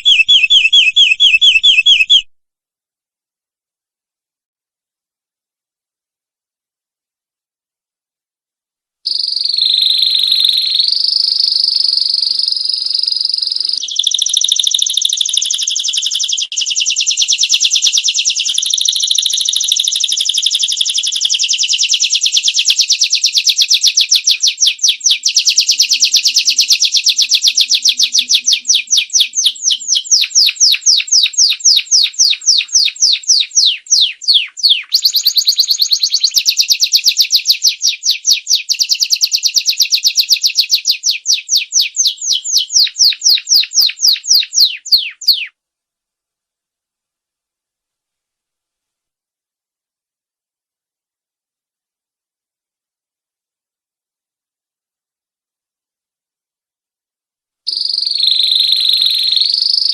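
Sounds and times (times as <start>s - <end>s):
canary singing: 0.0s - 2.3s, 9.1s - 45.6s, 57.7s - 59.9s.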